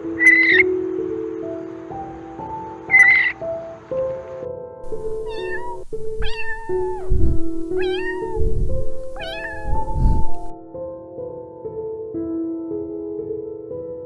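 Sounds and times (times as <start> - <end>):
soft background music: 0.0 - 14.0
cat meowing: 0.2 - 0.6, 2.9 - 3.4, 4.9 - 10.5.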